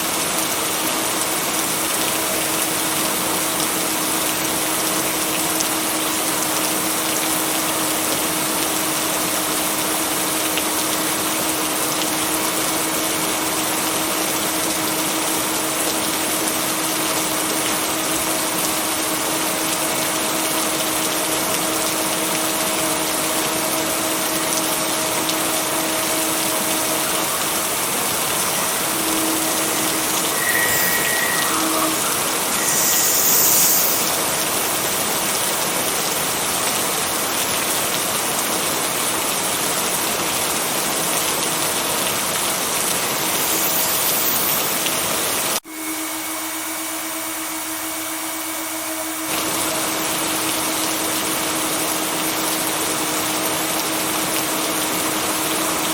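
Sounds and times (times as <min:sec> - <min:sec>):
steady rain hiss: 0:00.0 - 0:45.6
faint steady binaural tones: 0:28.3 - 0:34.5.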